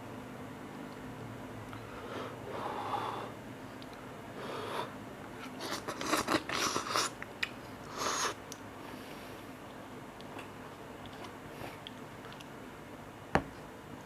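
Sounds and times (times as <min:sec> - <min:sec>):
person slurping noodles: 0:05.6 - 0:07.2.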